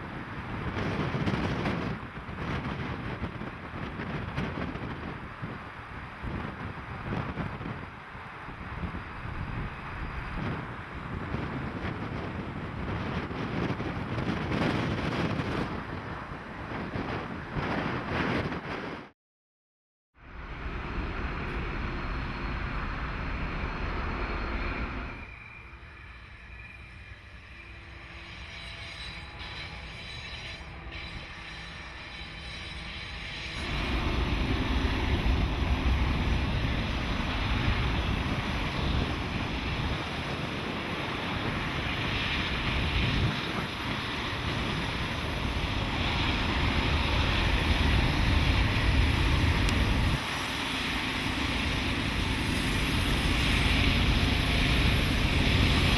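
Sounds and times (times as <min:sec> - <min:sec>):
train rumbling past: 0:00.0 - 0:19.1, 0:20.2 - 0:55.9
wind on microphone: 0:00.0 - 0:19.1, 0:33.6 - 0:55.9.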